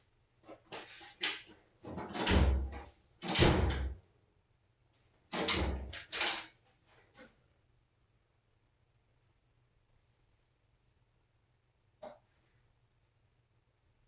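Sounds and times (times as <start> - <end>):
drawers sliding open and shut: 5.4 - 6.5.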